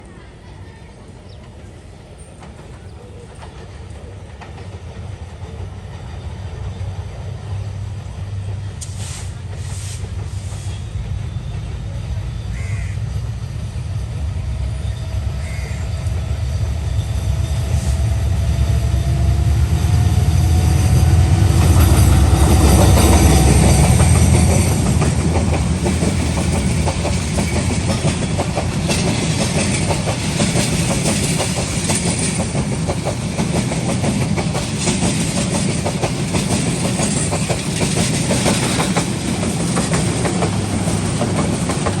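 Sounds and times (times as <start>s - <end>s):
train rumble: 0.0s - 42.0s
carriages clattering over rail joints: 21.5s - 42.0s.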